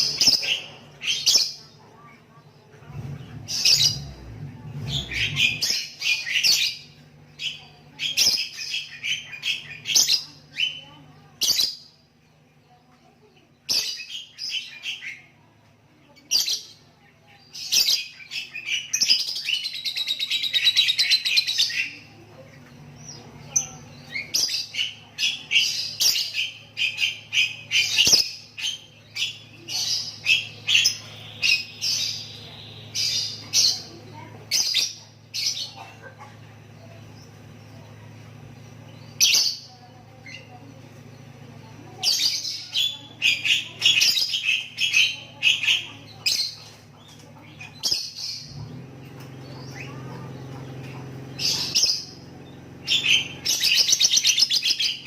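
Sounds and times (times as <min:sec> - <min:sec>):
bird trill: 0:03.4 - 0:12.1, 0:22.8 - 0:48.6, 0:49.4 - 0:55.0
lovebird chattering: 0:17.4 - 0:48.6, 0:49.4 - 0:55.0.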